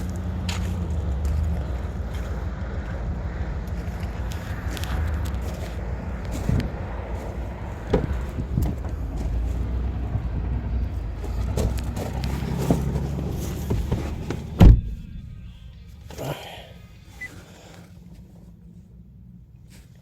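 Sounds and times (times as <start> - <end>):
wind rumbling on microphone: 0.0 - 16.0
car door shutting: 7.6 - 9.8, 11.0 - 16.2
microphone handling knocks: 7.8 - 9.3, 11.4 - 15.4.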